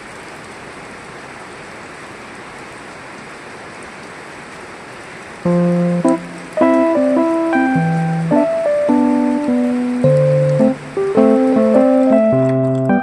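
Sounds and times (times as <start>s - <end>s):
rain hissing: 0.0s - 13.0s
music with held notes: 5.5s - 13.0s.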